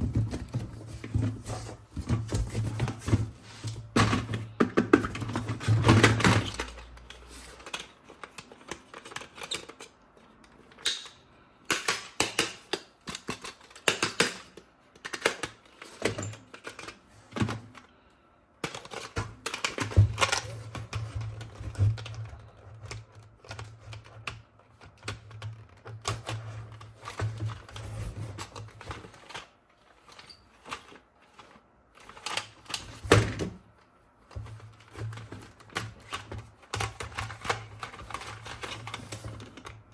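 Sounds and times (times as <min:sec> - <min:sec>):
plastic toy guns clicking: 0:10.8 - 0:15.6.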